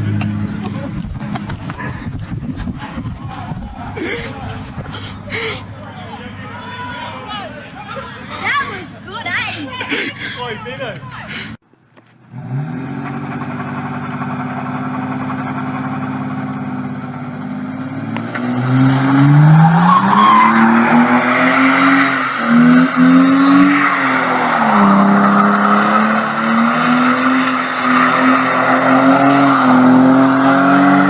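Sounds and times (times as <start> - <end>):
car engine revving: 12.2 - 31.0
tyres squealing: 18.5 - 31.0.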